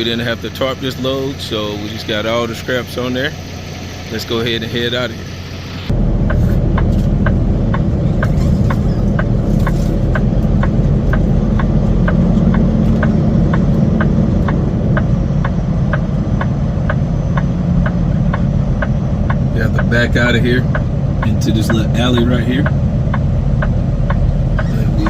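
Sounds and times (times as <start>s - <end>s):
diesel truck engine idling: 0.0s - 25.0s
rapid even ticking: 5.9s - 25.0s.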